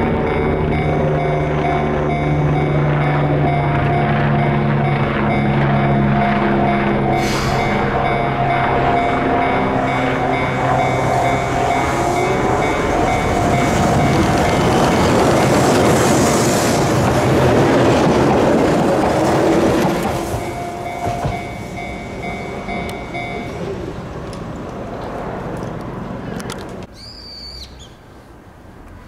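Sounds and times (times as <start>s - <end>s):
level crossing warning bell: 0.0s - 17.4s, 18.7s - 24.2s
train wheels rumbling on bridge: 0.0s - 25.9s.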